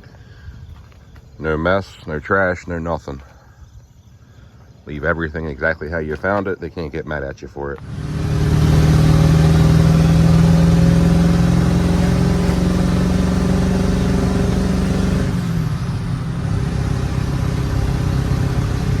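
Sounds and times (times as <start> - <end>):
pickup truck engine under load: 7.8 - 19.0.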